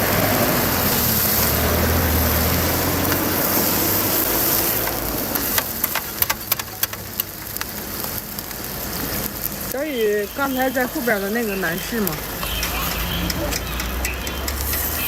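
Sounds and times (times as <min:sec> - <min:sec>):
sharp clicks and taps: 0:05.4 - 0:07.8, 0:12.4 - 0:15.0.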